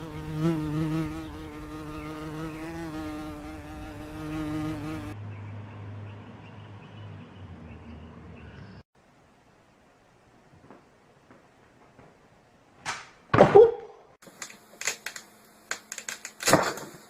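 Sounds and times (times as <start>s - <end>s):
insect-like buzz: 0.0s - 5.2s, 14.2s - 17.0s.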